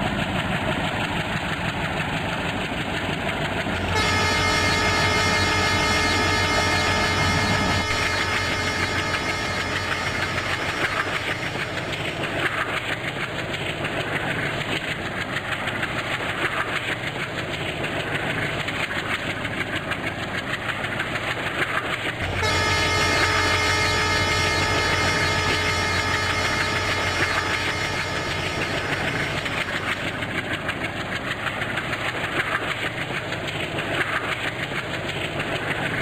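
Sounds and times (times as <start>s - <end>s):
passenger train running: 0.0s - 36.0s
steady tones: 3.7s - 12.8s, 22.2s - 30.2s.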